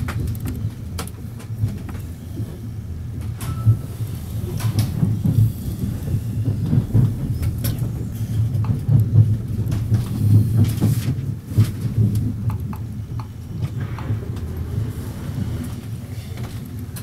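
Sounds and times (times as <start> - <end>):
train rumbling inside carriage: 0.0 - 17.0
sharp clicks and knocks: 6.4 - 14.8.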